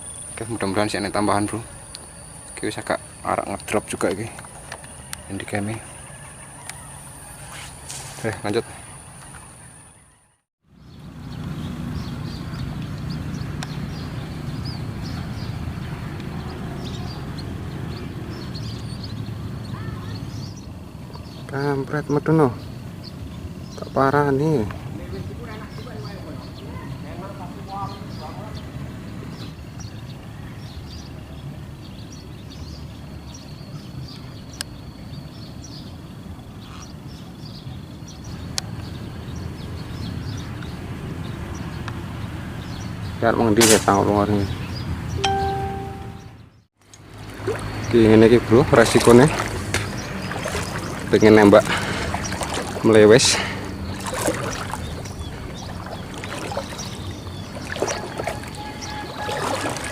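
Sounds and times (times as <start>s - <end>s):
small birds chirping: 0.0s - 59.9s
sharp click: 43.6s - 44.0s
bird chirps: 43.7s - 46.6s, 49.9s - 59.9s
thin high tone: 45.2s - 46.4s.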